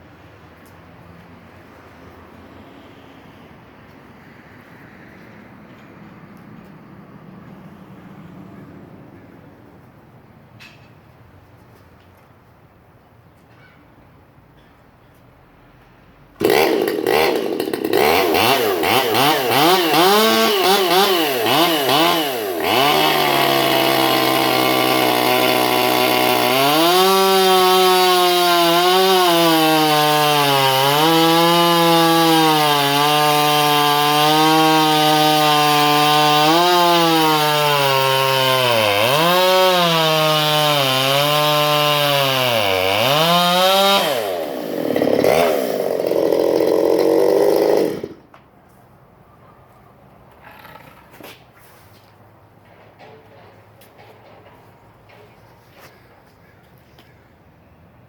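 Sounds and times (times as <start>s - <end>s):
chainsaw cutting log: 16.4s - 48.3s.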